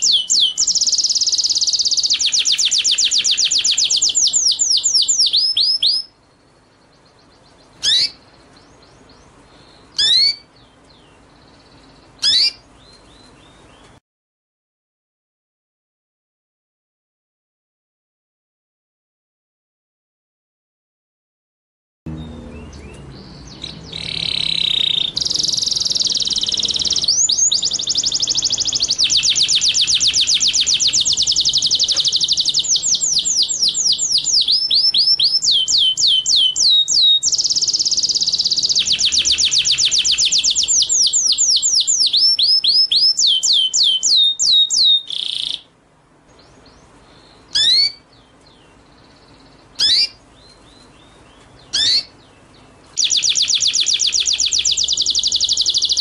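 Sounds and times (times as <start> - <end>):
songbird trilling: 0.0 - 14.0, 22.1 - 45.7, 46.3 - 56.0
single high bird calls: 7.7 - 8.7, 9.7 - 10.5, 12.2 - 13.4, 22.7 - 45.7, 47.2 - 48.1, 49.8 - 50.9, 51.6 - 52.2.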